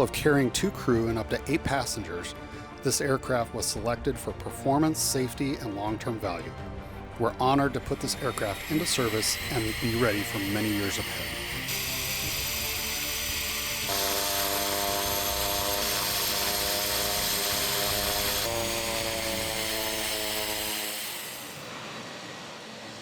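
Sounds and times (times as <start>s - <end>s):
turboprop propeller drone: 6.6s - 19.9s.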